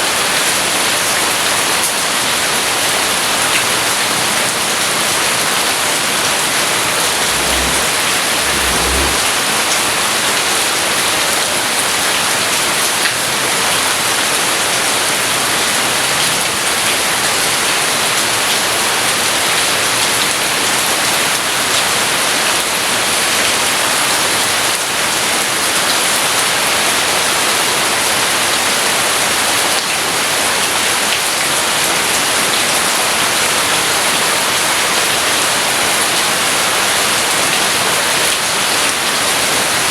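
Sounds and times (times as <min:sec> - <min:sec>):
heavy rain falling: 0:00.0 - 0:39.9
short low rumble: 0:07.2 - 0:09.4.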